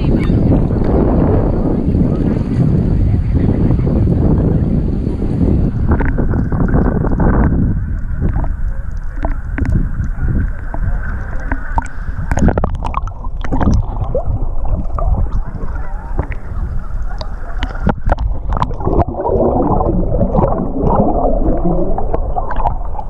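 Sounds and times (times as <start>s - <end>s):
heavy low rumble: 0.0s - 23.0s
water sloshing and gurgling: 5.1s - 23.0s
water bubbling: 5.2s - 23.0s.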